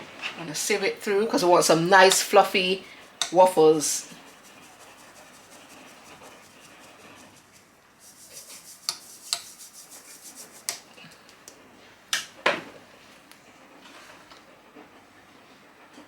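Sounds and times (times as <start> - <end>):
flour rubbing through sieve: 1.4 - 11.1.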